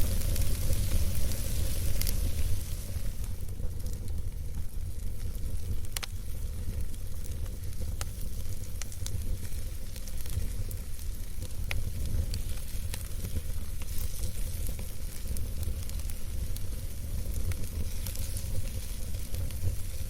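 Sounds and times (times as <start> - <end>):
burning wood crackling and popping: 0.0 - 20.0
campfire flames rumbling and hissing: 0.0 - 20.0.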